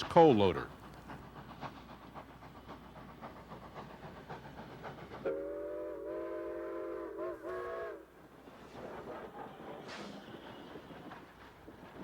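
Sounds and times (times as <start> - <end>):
model train wheels clicking: 0.0 - 5.3.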